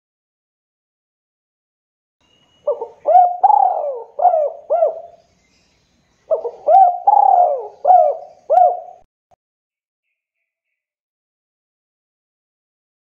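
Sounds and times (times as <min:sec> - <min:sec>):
dove cooing: 0:02.6 - 0:05.2, 0:06.3 - 0:09.1.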